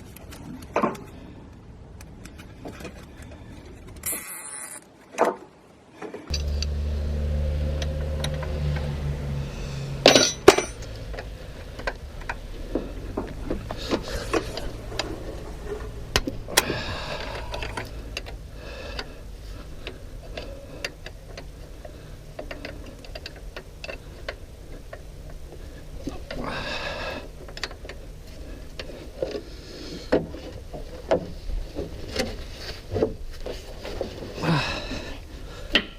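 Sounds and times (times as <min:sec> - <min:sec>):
steady low hum: 0:06.3 - 0:35.9
loud metal clanks: 0:10.0 - 0:10.9.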